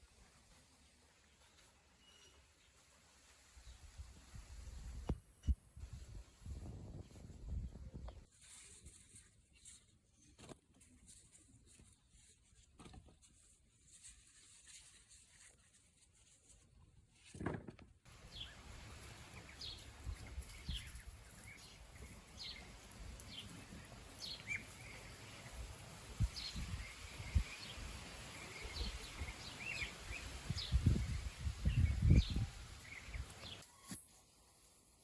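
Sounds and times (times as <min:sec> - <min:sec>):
small bird chirping: 0:18.2 - 0:34.0.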